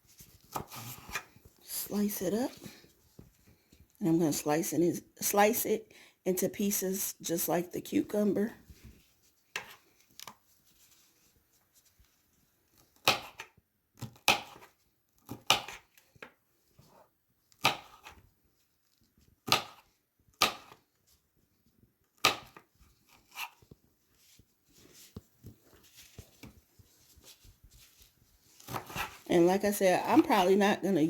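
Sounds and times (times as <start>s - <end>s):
knife chopping on board: 13.0s - 15.8s, 17.6s - 18.2s, 19.5s - 20.8s, 22.2s - 22.6s, 28.6s - 29.2s.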